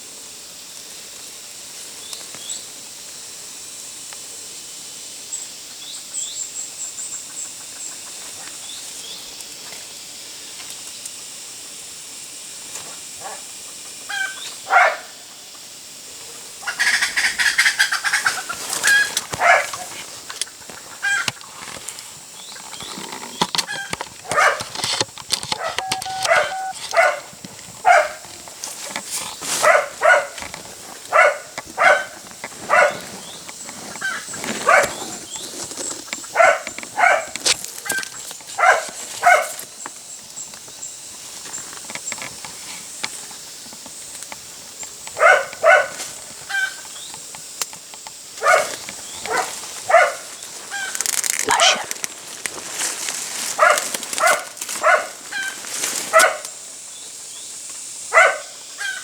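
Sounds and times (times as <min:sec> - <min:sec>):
dog barking and yelping: 0:14.7 - 0:15.1, 0:19.4 - 0:19.8, 0:24.2 - 0:24.7, 0:25.6 - 0:28.2, 0:29.6 - 0:30.4, 0:31.1 - 0:33.0, 0:34.6 - 0:35.0, 0:36.3 - 0:37.3, 0:38.6 - 0:39.6, 0:45.2 - 0:46.0, 0:48.4 - 0:48.7, 0:49.3 - 0:50.3, 0:51.4 - 0:52.0, 0:53.6 - 0:55.2, 0:56.1 - 0:56.5, 0:58.1 - 0:58.5.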